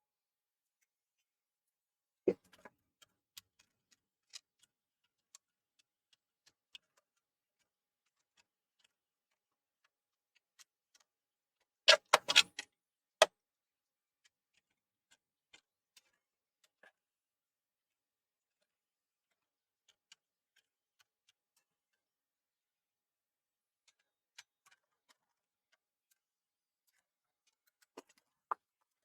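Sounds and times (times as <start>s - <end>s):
tools clicking on workbench: 11.9s - 12.4s.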